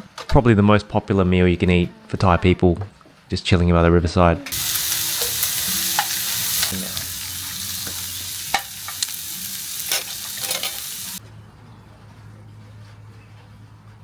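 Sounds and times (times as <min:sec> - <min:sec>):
food sizzling on grill: 0:04.5 - 0:11.2.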